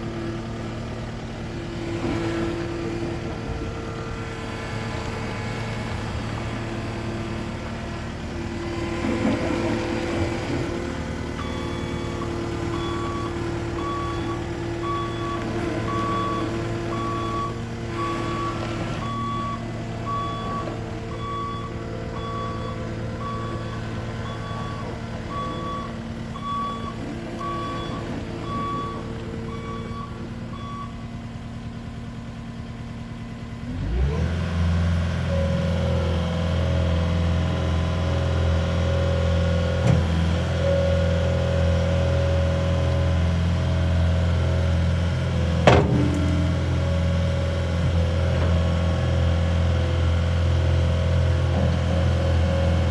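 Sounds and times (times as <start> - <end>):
diesel engine running: 0.0 - 52.9
reversing alarm beeping: 9.2 - 31.1.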